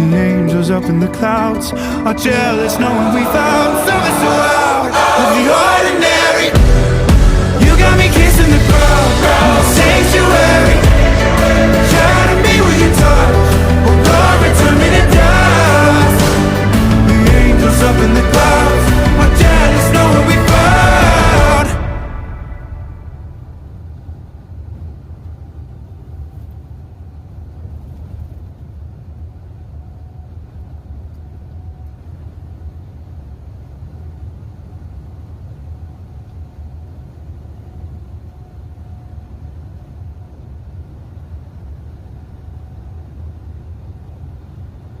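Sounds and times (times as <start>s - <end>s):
faint thin whine: 22.4s - 45.0s.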